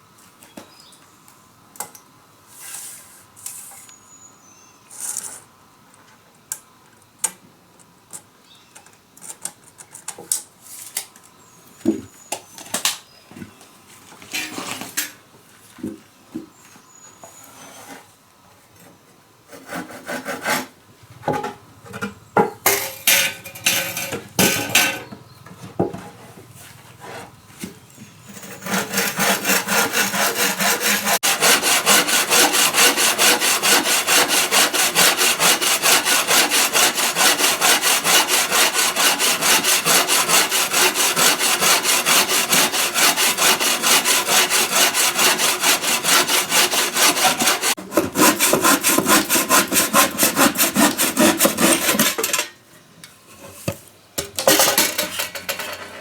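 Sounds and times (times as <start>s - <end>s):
hand saw cutting wood: 19.5s - 21.5s, 22.7s - 25.1s, 28.2s - 52.5s
wood knocking and scraping: 46.5s - 52.4s.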